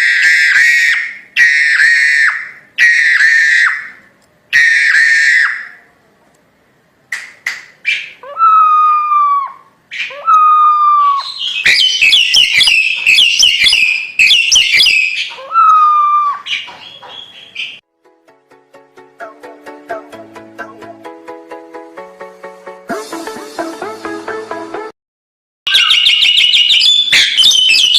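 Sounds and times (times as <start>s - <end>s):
myna whistling and clicking: 9.9s - 17.8s, 25.7s - 27.9s
music: 17.9s - 24.9s.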